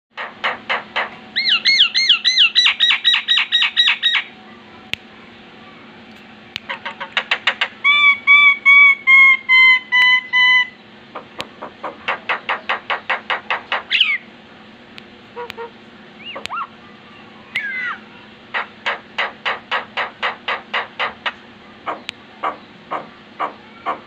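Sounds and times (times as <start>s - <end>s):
faint steady hum: 0.2s - 24.0s
bird whistling song: 1.4s - 4.3s, 13.9s - 14.3s, 16.2s - 16.7s
bird clicks: 14.9s - 16.7s.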